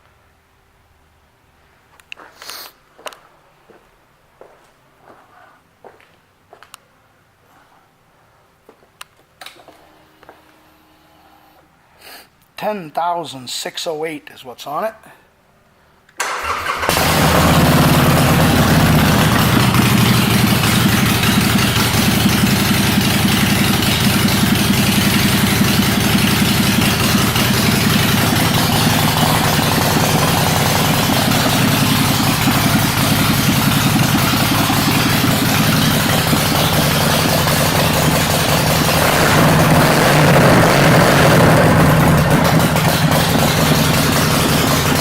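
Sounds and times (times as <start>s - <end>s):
motorcycle starter cranking: 16.2s - 45.0s
motorcycle engine idling: 16.4s - 45.0s.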